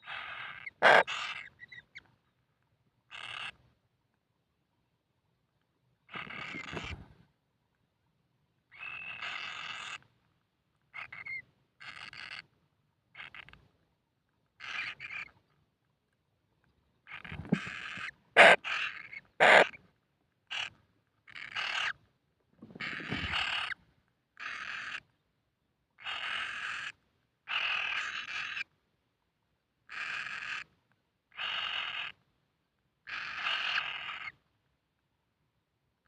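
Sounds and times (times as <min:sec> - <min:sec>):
kingfisher chicks calling raspily: 0:00.0 - 0:02.0, 0:03.1 - 0:03.6, 0:06.1 - 0:07.0, 0:08.7 - 0:10.0, 0:14.6 - 0:15.3, 0:17.1 - 0:19.8, 0:20.5 - 0:20.7, 0:21.3 - 0:22.0, 0:22.8 - 0:23.8, 0:24.4 - 0:25.0, 0:27.5 - 0:28.6, 0:29.9 - 0:30.7, 0:31.3 - 0:32.2, 0:33.1 - 0:34.4.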